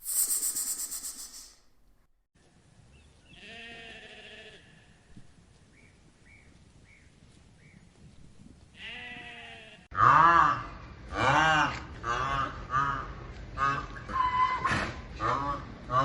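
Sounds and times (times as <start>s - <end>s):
faint short chirps: 0.0s - 1.7s
farm animal bleating: 3.3s - 5.1s, 8.8s - 10.2s.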